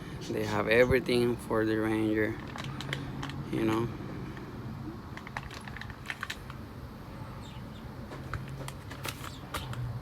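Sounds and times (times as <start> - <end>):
clicks of parts and packaging handled: 2.4 - 3.8, 5.1 - 6.6, 8.1 - 9.9.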